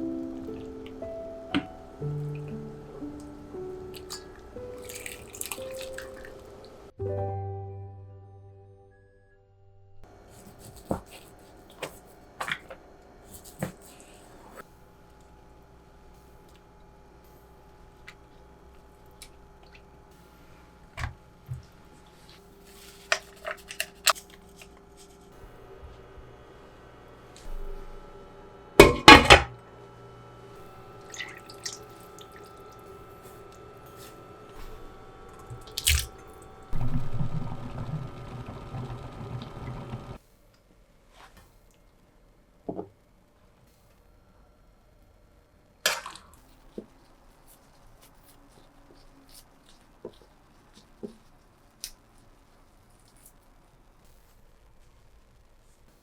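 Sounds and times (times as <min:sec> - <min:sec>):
dishes knocking down: 0:28.8 - 0:29.6.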